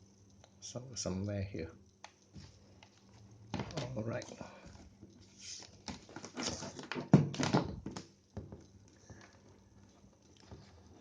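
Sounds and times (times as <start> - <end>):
objects rattling and clicking: 2.8 - 11.0.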